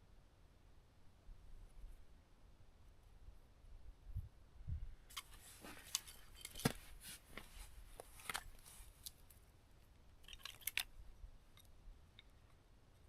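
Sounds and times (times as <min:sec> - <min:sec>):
kindling snapping and popping: 0:10.2 - 0:10.9.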